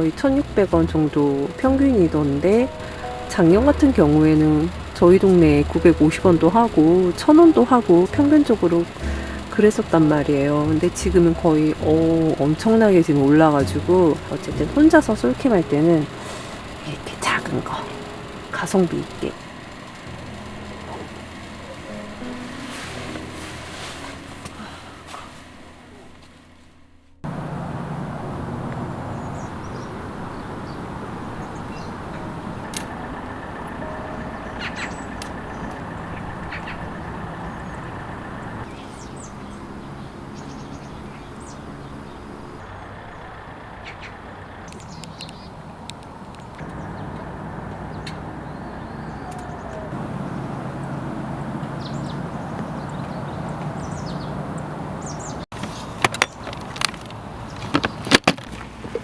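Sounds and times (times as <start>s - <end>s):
low rumble and hum: 0.0s - 30.1s, 30.9s - 54.0s
sharp clicks and knocks: 55.5s - 59.0s.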